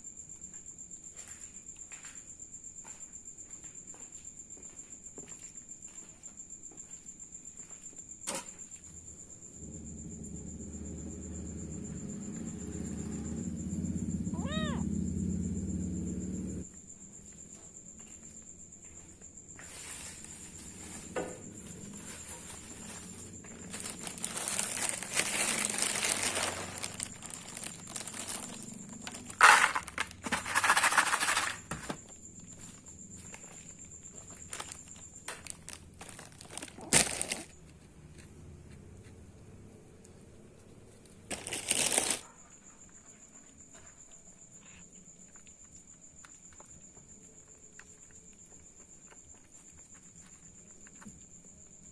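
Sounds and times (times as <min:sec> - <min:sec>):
cricket trilling: 0:00.0 - 0:51.9
cat meowing: 0:14.3 - 0:15.0
rustling crinkling noises: 0:19.6 - 0:37.9, 0:41.2 - 0:42.3.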